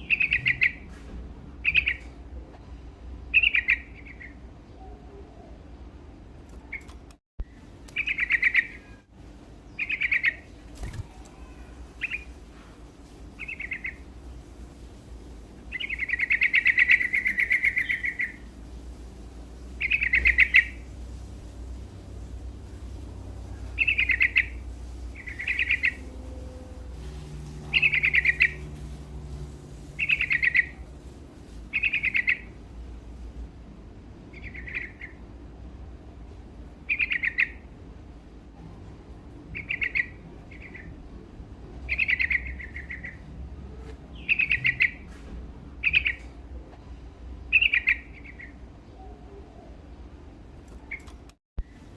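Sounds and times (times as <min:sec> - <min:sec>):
bulbul singing: 0:00.0 - 0:00.8, 0:03.3 - 0:05.4, 0:06.6 - 0:09.1, 0:09.7 - 0:12.4, 0:13.4 - 0:14.1, 0:15.7 - 0:18.5, 0:19.7 - 0:20.9, 0:22.6 - 0:29.4, 0:30.0 - 0:30.9, 0:31.7 - 0:32.5, 0:41.9 - 0:43.2, 0:44.1 - 0:45.0, 0:47.5 - 0:49.7.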